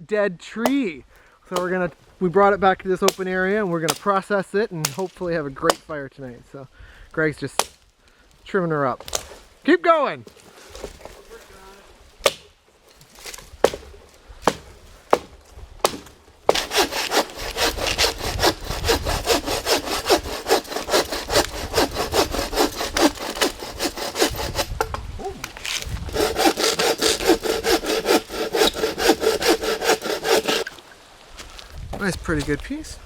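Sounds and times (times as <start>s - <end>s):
hand saw cutting wood: 14.5s - 24.9s, 25.5s - 30.8s.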